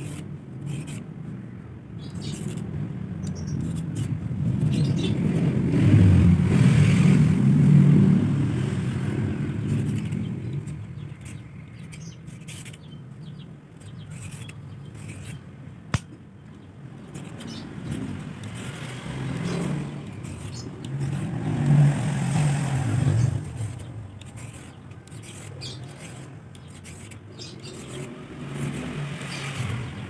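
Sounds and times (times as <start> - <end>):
motor vehicle passing by: 2.2 - 13.4, 16.8 - 30.0
sharp click: 15.9 - 16.7.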